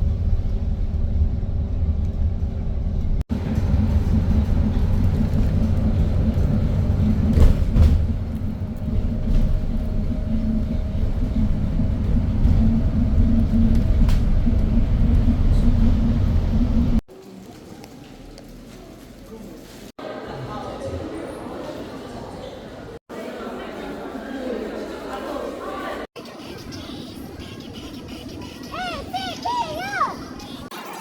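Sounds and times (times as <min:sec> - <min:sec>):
moving vehicle rumble: 0:00.0 - 0:17.0.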